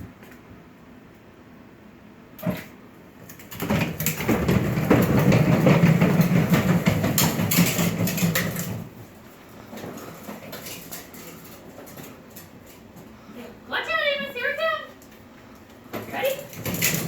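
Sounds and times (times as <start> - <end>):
plastic wheels rattling on ground: 3.2 - 13.2, 15.9 - 17.0.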